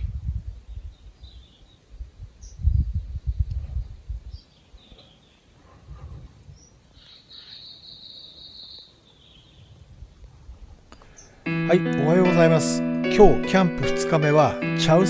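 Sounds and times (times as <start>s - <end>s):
small birds chirping and trilling: 0.6s - 3.5s, 4.2s - 5.6s, 6.5s - 9.9s.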